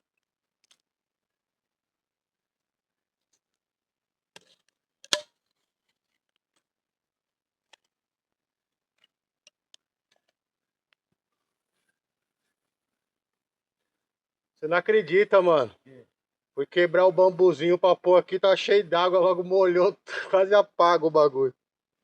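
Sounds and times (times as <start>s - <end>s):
bamboo stalk snapping: 4.4s - 5.3s.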